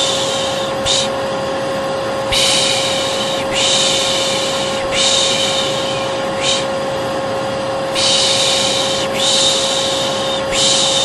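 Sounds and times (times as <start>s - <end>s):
person shushing: 0.0s - 1.2s, 2.3s - 6.8s, 8.0s - 11.0s
vacuum cleaner running: 0.0s - 11.0s.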